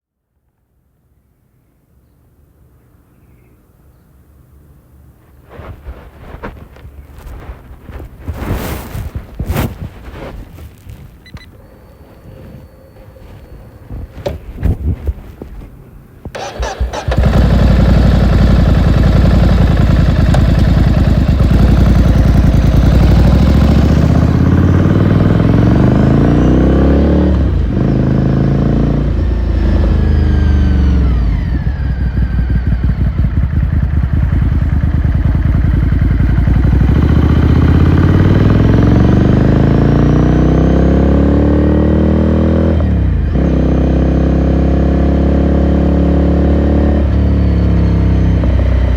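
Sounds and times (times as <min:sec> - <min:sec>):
motorcycle engine revving: 0:11.6 - 0:15.6, 0:16.3 - 0:48.9.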